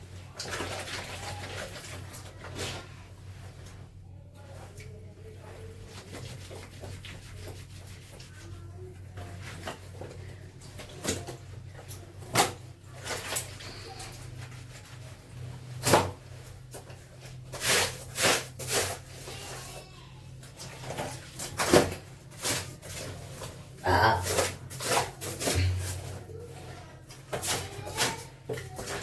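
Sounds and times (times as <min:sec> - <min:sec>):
steady low hum: 0:23.6 - 0:27.1.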